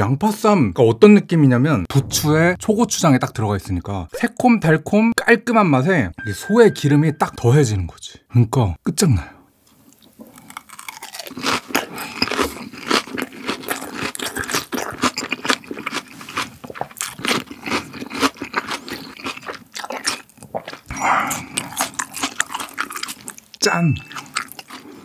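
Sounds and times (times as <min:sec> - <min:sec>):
crunching and wet smacking: 0:09.9 - 0:25.0.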